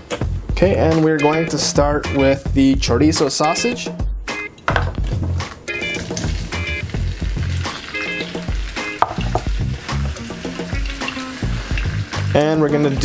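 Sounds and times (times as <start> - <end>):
background music: 0.0 - 13.0
sausage sizzling in oil: 5.7 - 13.0.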